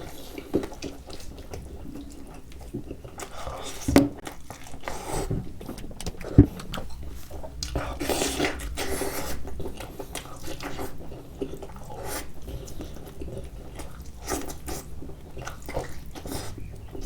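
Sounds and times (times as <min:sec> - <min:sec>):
chewing and biting: 0:00.0 - 0:17.0.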